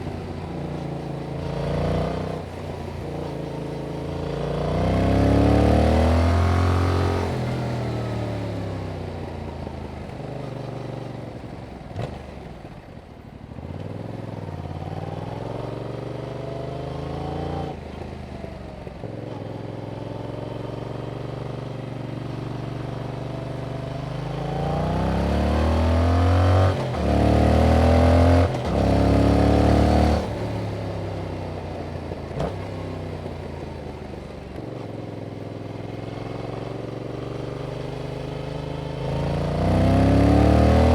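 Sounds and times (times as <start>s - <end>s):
motorcycle engine revving: 36.1s - 40.9s.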